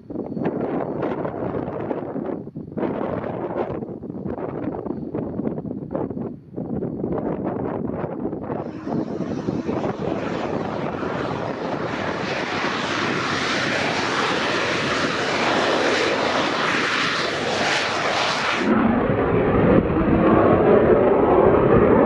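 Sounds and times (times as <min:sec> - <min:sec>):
aircraft engine rushing flyby: 0:08.4 - 0:22.0
low rumble: 0:08.4 - 0:22.0.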